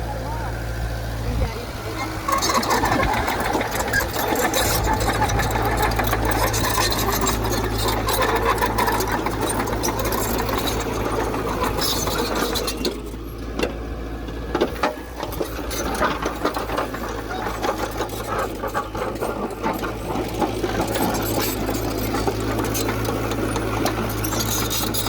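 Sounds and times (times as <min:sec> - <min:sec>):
diesel engine clattering: 0:00.0 - 0:25.0.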